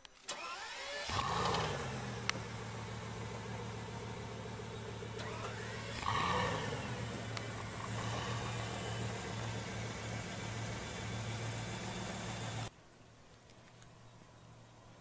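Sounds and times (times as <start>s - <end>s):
car engine idling: 0.6s - 12.7s
engine throttle blip: 1.1s - 12.7s.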